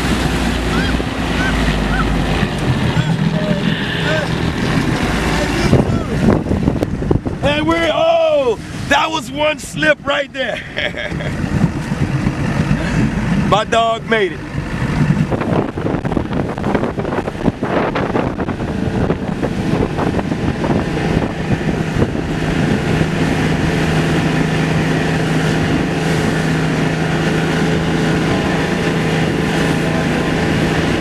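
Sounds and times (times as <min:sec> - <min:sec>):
motorboat engine droning: 0:00.0 - 0:31.0
wind buffeting microphone: 0:00.0 - 0:31.0.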